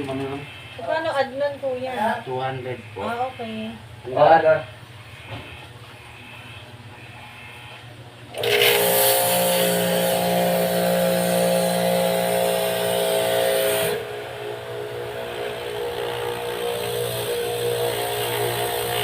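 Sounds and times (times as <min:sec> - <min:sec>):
pressure washer motor whine: 0:08.3 - 0:19.0.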